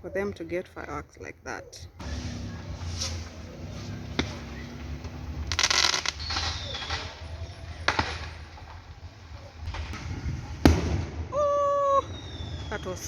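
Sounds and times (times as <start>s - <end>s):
fireworks bangs: 2.0s - 13.0s
fireworks crackling: 2.0s - 13.0s
falling whistle: 11.3s - 13.0s.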